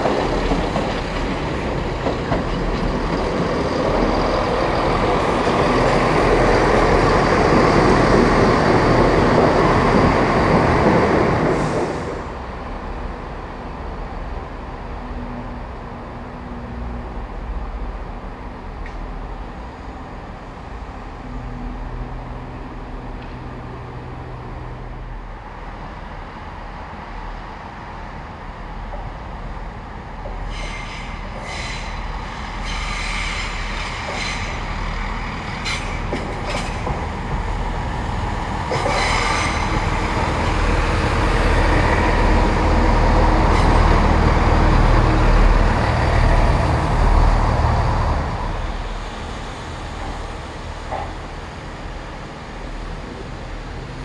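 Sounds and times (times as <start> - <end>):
train low steady hum: 0.0 - 54.0
train wheels squealing: 30.4 - 34.8, 38.7 - 39.9, 43.4 - 44.1.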